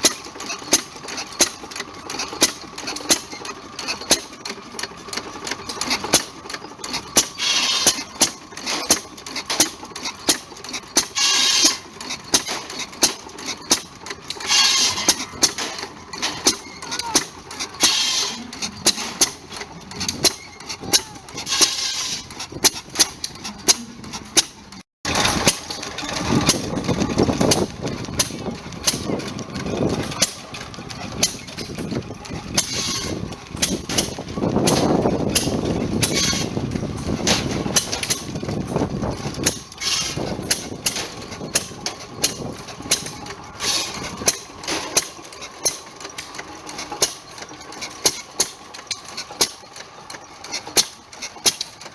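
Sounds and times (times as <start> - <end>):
wood saw cutting: 6.9 - 9.8, 11.0 - 13.8, 14.4 - 25.8, 32.6 - 34.1, 35.4 - 36.5, 39.7 - 40.2.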